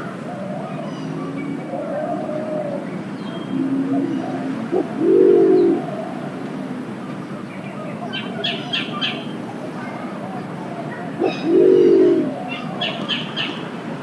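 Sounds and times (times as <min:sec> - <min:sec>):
pigeon deep hoot: 0:03.6 - 0:06.1, 0:11.2 - 0:12.5.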